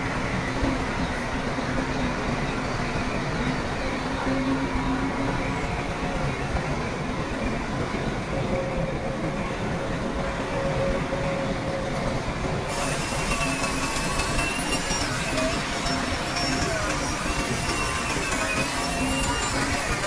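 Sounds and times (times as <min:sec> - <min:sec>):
steel tracks clattering and squealing: 0:00.0 - 0:20.0
bulldozer diesel engine running: 0:12.7 - 0:20.0.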